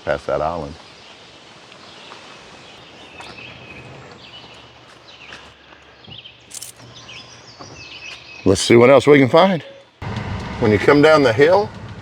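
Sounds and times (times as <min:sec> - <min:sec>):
small birds chirping: 0:00.4 - 0:10.0.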